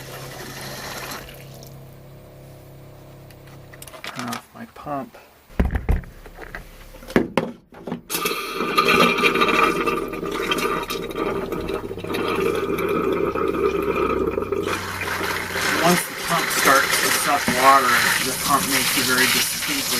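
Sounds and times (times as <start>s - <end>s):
water rushing through plumbing: 0.0s - 2.0s, 8.0s - 19.9s
water pump running: 0.0s - 4.0s, 8.1s - 19.9s
knocks: 5.5s - 8.1s.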